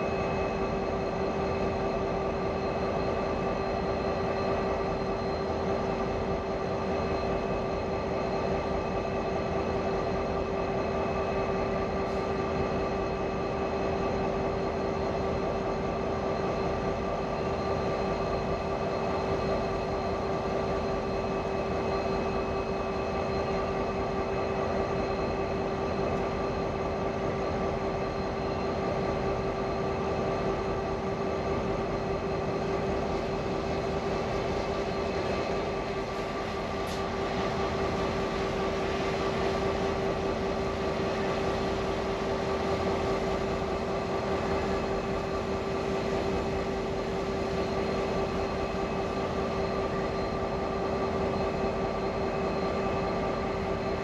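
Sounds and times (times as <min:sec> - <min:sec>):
train rumbling: 0:28.6 - 0:54.0.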